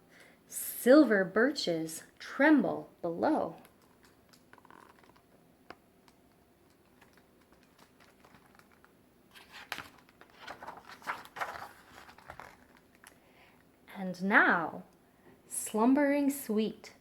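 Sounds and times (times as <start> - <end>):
book pages rustling: 3.6 - 13.2.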